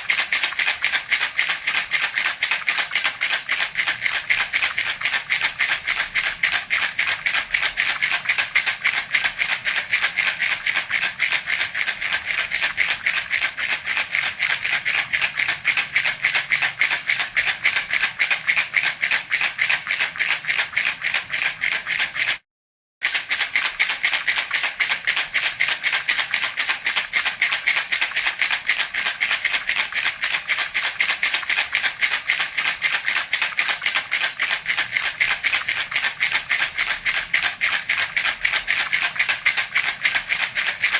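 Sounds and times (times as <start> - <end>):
baby's rattle shaken rapidly: 0.0 - 22.4, 23.0 - 40.9.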